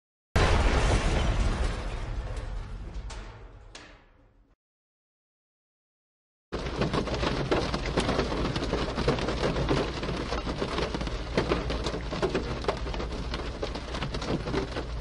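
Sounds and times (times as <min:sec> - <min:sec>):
rain on a car roof: 0:06.6 - 0:15.0.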